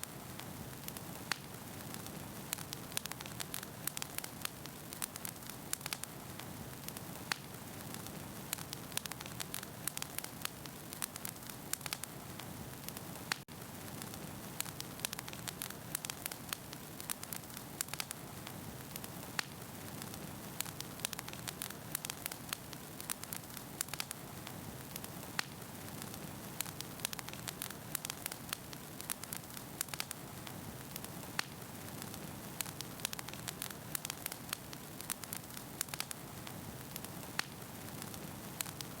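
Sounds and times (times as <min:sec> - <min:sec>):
firewood crackling and popping: 0:00.0 - 0:39.0.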